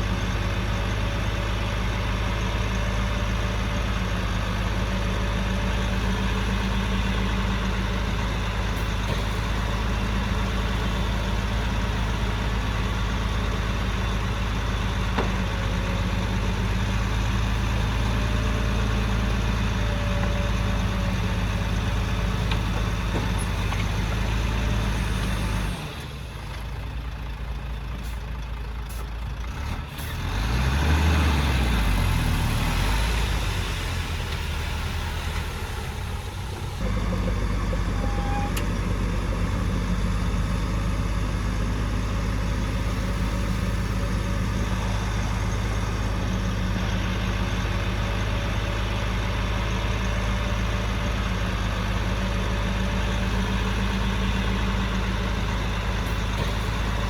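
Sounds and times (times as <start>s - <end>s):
construction machine engine humming: 0.0s - 57.0s
engine revving: 29.5s - 40.7s.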